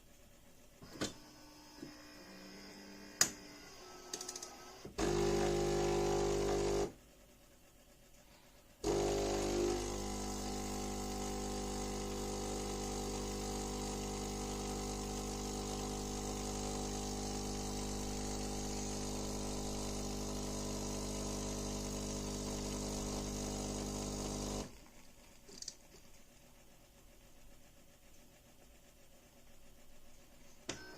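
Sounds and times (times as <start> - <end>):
espresso machine humming and whirring: 4.5 - 7.0, 8.8 - 24.8.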